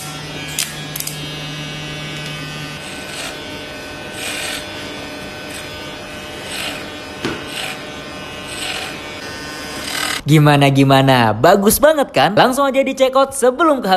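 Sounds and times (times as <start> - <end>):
clipper blade rasping through hair: 0.0 - 1.3, 2.1 - 10.2
hair clipper humming: 0.0 - 10.3.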